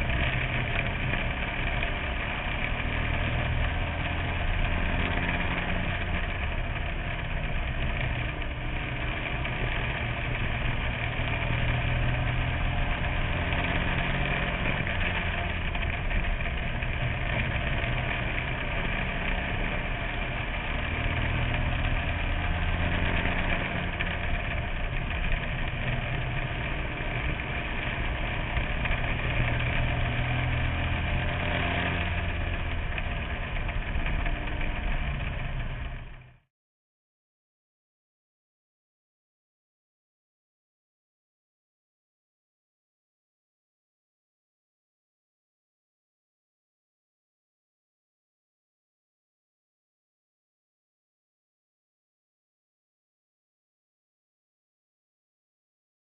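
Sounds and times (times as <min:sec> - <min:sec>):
race car engine running: 0:00.0 - 0:36.4.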